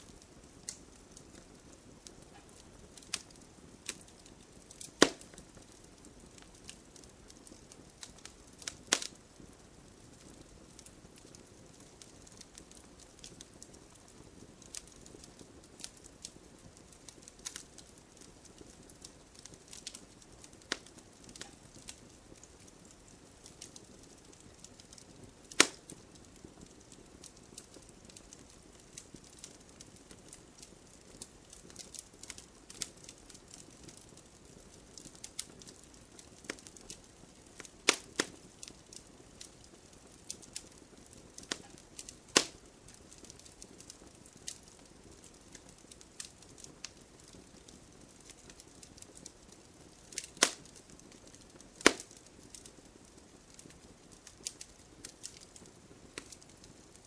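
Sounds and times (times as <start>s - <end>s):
faint low hiss: 0.0s - 57.0s
wood fire crackling: 0.0s - 57.0s
loud sharp pops: 4.9s - 5.4s, 25.6s - 25.9s, 37.9s - 38.4s, 42.3s - 42.6s, 50.2s - 50.7s, 51.8s - 52.1s.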